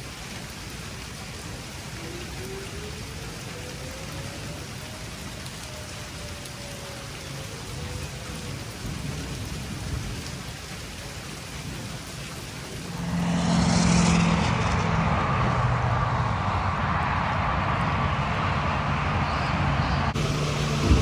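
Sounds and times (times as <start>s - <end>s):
rain falling: 0.0s - 21.0s
rushing noise with low hum: 0.0s - 21.0s.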